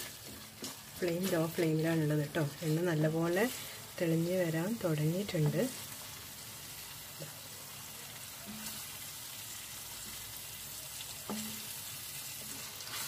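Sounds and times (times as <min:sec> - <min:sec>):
wooden spatula scraping pan: 0:00.0 - 0:03.7, 0:12.3 - 0:13.0
masala sizzling in oil: 0:00.0 - 0:13.0.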